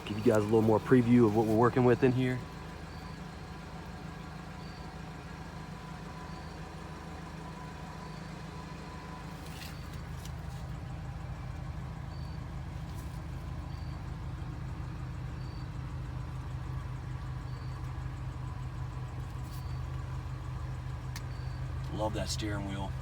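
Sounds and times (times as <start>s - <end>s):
engine idling: 0.0s - 23.0s
light clicks: 21.1s - 21.5s.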